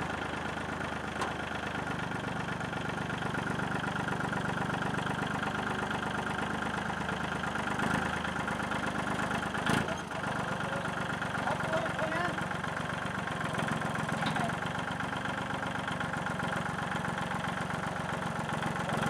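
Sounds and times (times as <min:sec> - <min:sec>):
loader engine idling: 0:00.0 - 0:19.0.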